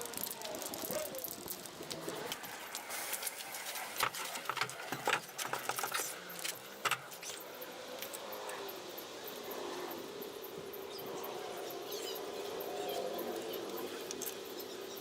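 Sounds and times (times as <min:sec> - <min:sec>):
light clinks and rattles: 0:04.0 - 0:07.4.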